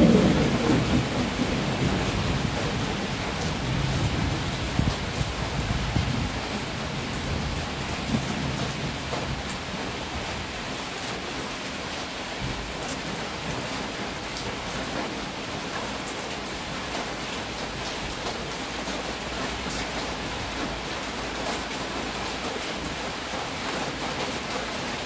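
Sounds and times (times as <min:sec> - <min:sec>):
low rumble of thunder: 0:00.0 - 0:10.5
heavy rain falling: 0:00.0 - 0:25.0.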